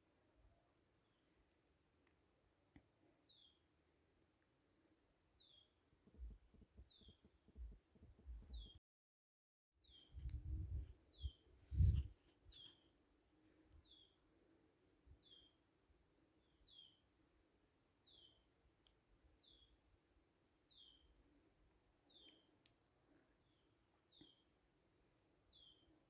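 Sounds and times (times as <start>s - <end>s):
low muffled thumps and rumbling: 10.2s - 12.1s.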